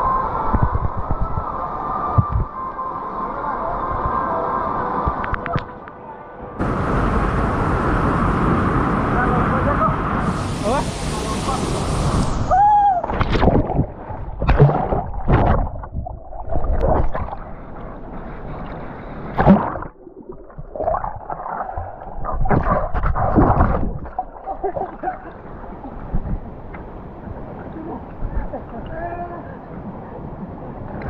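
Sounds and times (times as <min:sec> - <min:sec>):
muffled water sloshing and gurgling: 0:13.0 - 0:28.8.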